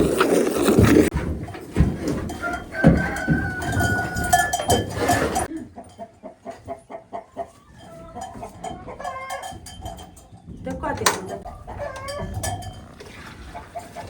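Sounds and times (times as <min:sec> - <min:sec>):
scraping and rustling: 0:00.0 - 0:05.5
hens clucking: 0:00.0 - 0:14.0.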